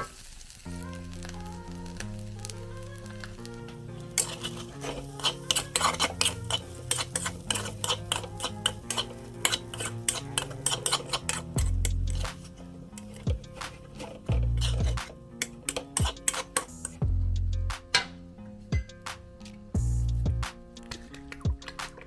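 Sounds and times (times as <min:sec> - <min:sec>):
background music: 0:00.6 - 0:22.0
metal spatula scraping a pan: 0:04.0 - 0:17.0.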